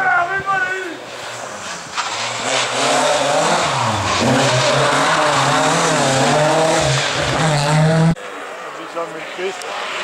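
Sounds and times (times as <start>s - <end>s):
rally car engine revving: 0.9s - 8.2s.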